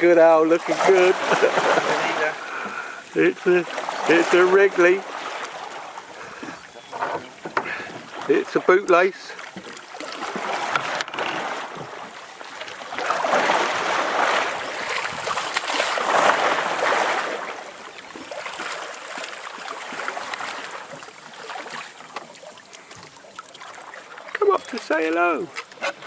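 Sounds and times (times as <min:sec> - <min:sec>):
sea wash: 0:00.0 - 0:26.0
wind: 0:00.0 - 0:26.0.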